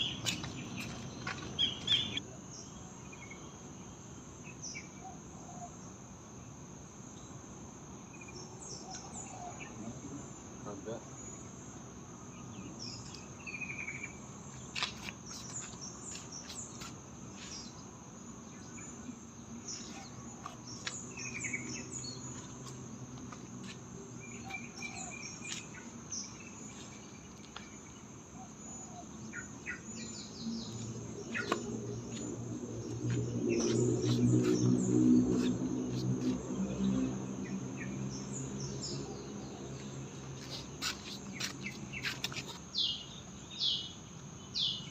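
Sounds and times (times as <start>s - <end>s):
bird chirps and calls: 0.0s - 2.2s, 28.4s - 31.7s
crickets chirring: 0.0s - 44.9s.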